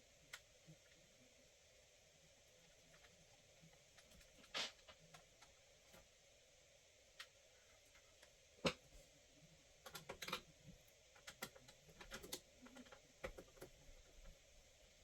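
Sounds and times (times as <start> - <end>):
light clicks and taps: 11.2 - 14.4.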